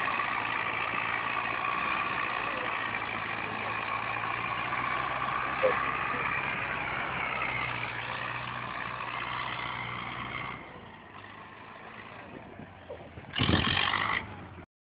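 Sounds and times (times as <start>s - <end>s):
tractor engine running: 0.0s - 14.7s.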